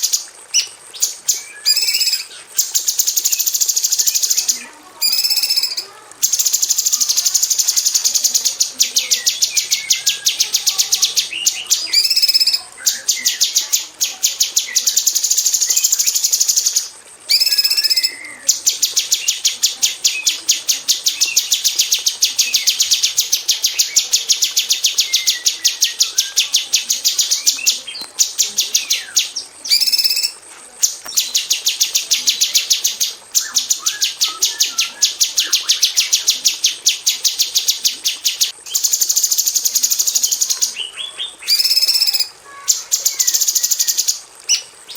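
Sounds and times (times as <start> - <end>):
bird singing rapid sharp notes: 0.0 - 44.9.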